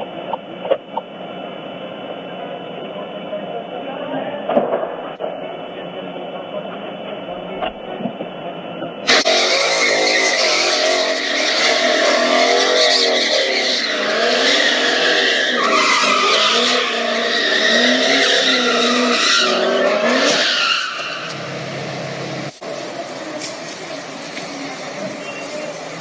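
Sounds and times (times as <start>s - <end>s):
sports car engine revving: 9.1s - 25.0s
tyres squealing and skidding: 9.1s - 26.0s.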